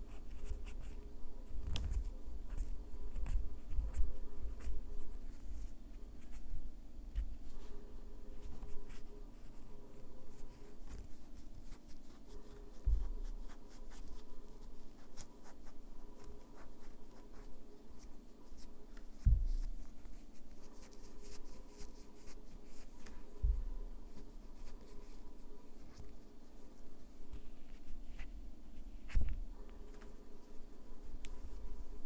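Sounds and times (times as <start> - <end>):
scratching on fingernails: 0.0 - 32.0
dull thumps on work surface: 19.2 - 19.7.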